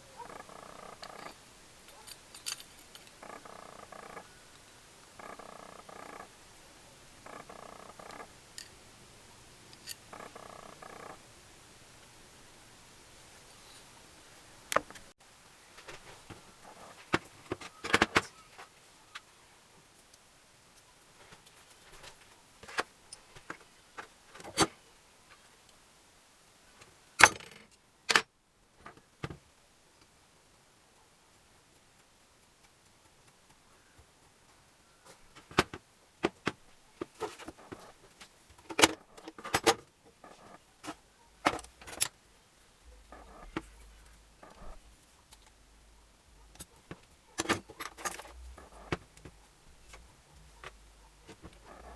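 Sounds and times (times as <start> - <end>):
metal tools clinking: 1.0 - 3.3.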